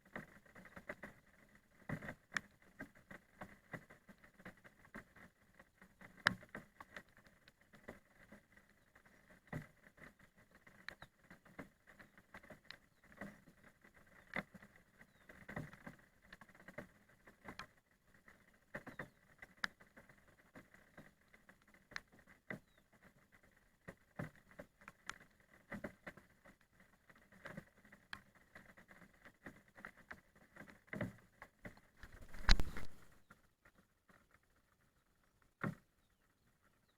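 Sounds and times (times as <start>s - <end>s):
raindrops tapping: 31.6s - 33.1s.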